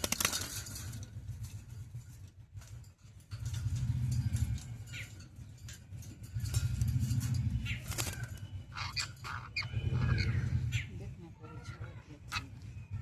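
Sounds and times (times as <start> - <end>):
parrot flapping wings: 0.0 - 2.8
parrot chirps and squawks: 8.2 - 13.0.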